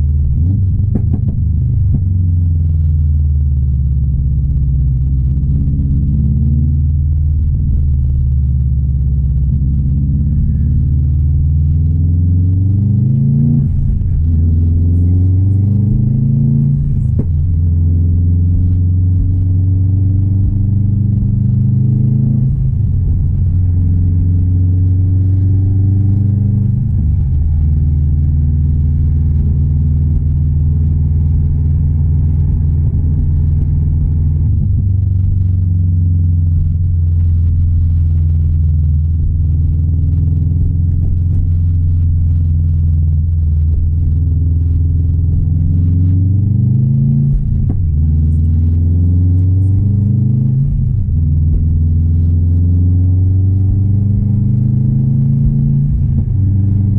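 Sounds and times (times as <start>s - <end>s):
car engine accelerating through gears: 0.0s - 56.9s.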